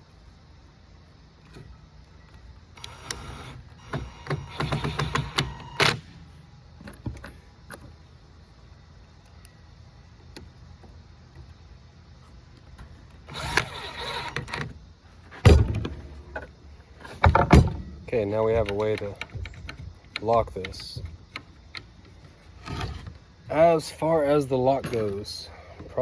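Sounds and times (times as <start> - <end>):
small hardware clicking and rattling: 18.5 - 23.1.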